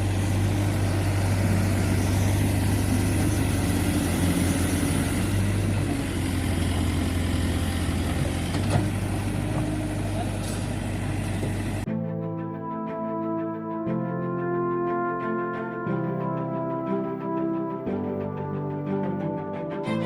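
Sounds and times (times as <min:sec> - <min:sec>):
diesel engine droning: 0:00.0 - 0:11.9.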